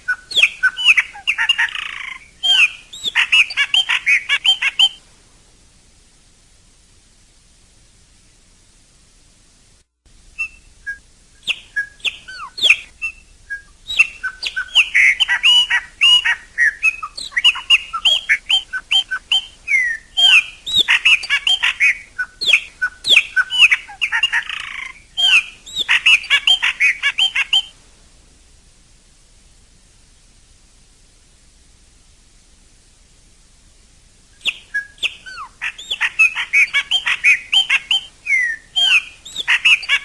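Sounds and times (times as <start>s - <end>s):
blackbird whistling song: 0.0s - 5.0s, 10.4s - 27.8s, 34.4s - 40.0s.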